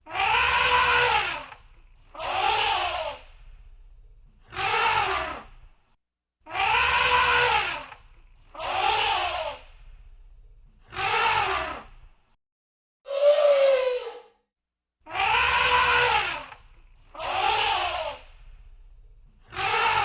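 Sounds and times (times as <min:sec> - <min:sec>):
elephant trumpeting: 0:00.1 - 0:01.5, 0:06.6 - 0:07.8, 0:15.2 - 0:16.5.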